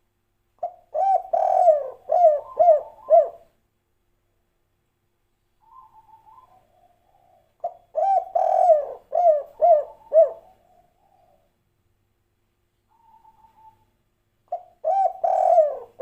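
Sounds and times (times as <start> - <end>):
dove cooing: 0.6 - 3.5, 5.6 - 11.5, 12.9 - 13.9, 14.5 - 16.0.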